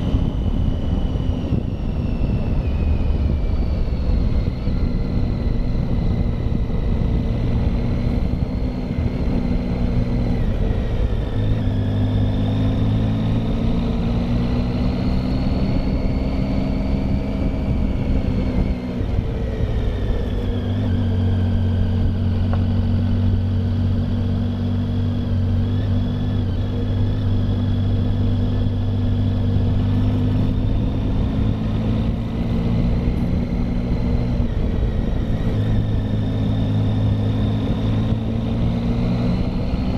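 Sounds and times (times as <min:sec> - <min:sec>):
motorcycle engine running: 0:00.0 - 0:39.9
wind and road rush: 0:00.0 - 0:39.9.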